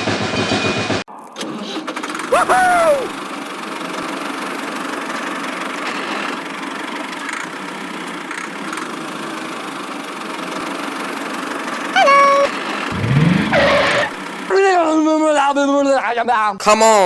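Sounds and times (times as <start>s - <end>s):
short pitched tone: 12.0s - 14.2s.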